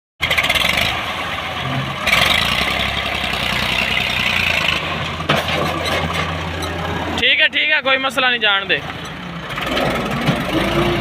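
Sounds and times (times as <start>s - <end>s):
tractor engine running: 0.2s - 11.0s.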